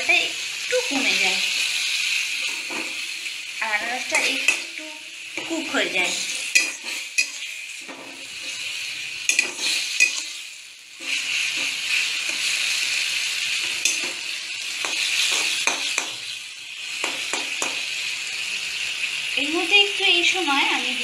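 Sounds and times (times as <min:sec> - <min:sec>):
pineapple sizzling in hot ghee: 0:00.0 - 0:21.0
metal spatula scraping a pan: 0:05.4 - 0:16.2.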